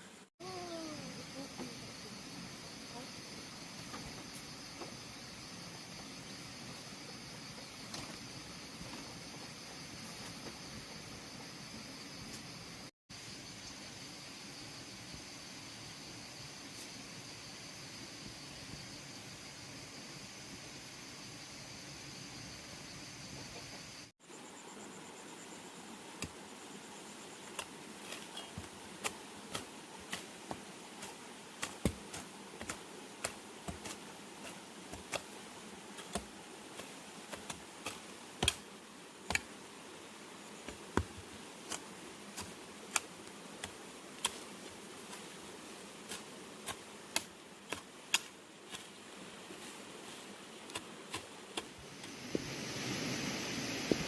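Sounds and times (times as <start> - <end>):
steady hiss: 0.0 - 54.0
sharp knocks and clicks on bamboo: 31.6 - 34.0, 34.9 - 35.4, 36.0 - 38.7, 39.3 - 39.5, 46.7 - 48.9.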